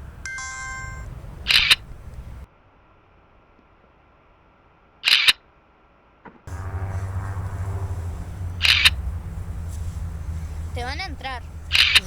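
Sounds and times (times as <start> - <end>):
steady low hum: 0.0 - 2.5, 6.5 - 12.0.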